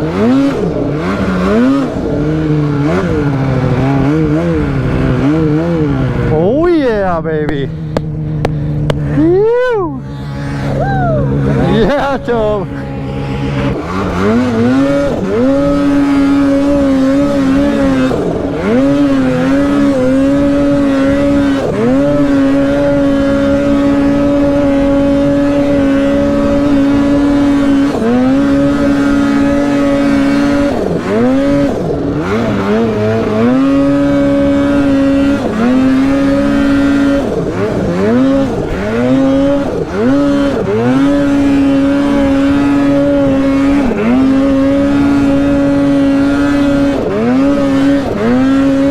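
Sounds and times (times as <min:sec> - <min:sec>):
snowmobile engine revving: 0:00.0 - 0:48.9.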